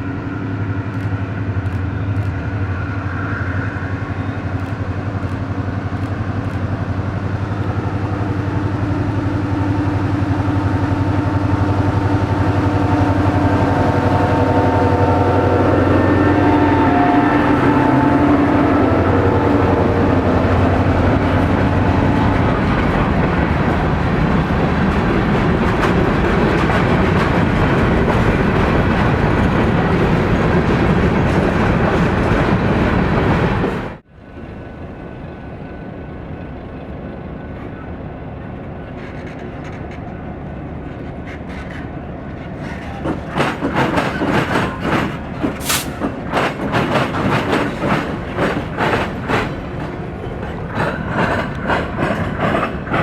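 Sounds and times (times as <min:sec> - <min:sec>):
diesel locomotive engine: 0:00.0 - 0:53.0
train wheels clickety-clack: 0:00.6 - 0:09.1, 0:19.7 - 0:34.0, 0:38.6 - 0:53.0.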